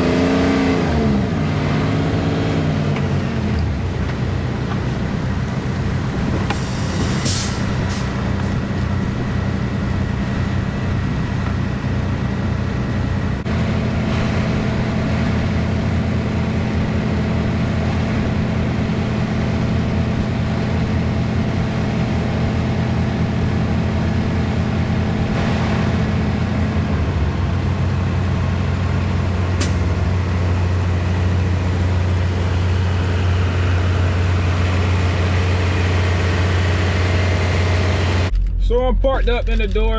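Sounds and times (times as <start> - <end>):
truck diesel engine running: 0.0 - 39.3
short air hisses: 6.5 - 8.2.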